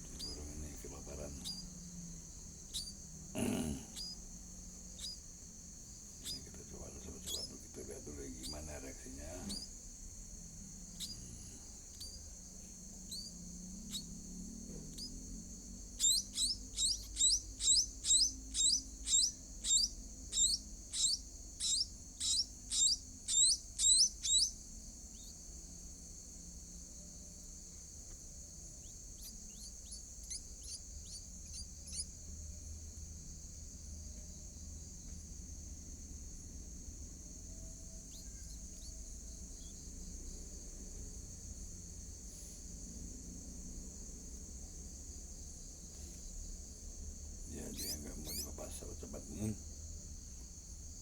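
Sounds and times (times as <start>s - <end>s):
nestling birds begging calls: 0.0s - 1.8s, 2.5s - 4.3s, 4.9s - 5.3s, 6.0s - 9.8s, 10.8s - 12.2s, 14.7s - 15.2s, 15.8s - 24.6s, 47.5s - 49.6s
insects chirring: 0.0s - 51.0s.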